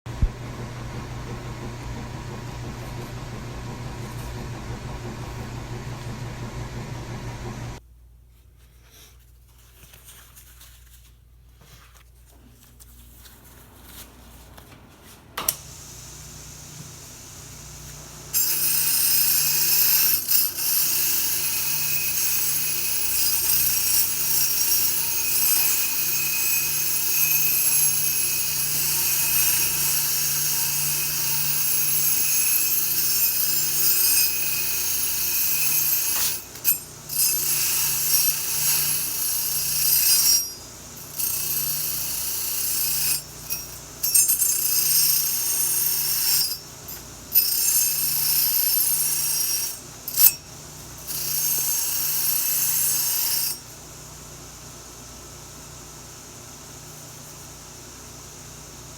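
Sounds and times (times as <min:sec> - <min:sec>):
handheld power tool running: 0:15.5 - 0:50.4.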